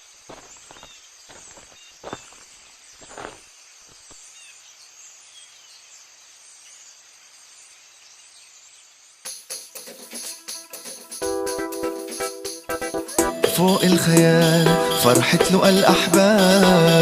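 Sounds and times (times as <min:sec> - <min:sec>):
crickets chirring: 0:00.0 - 0:10.1.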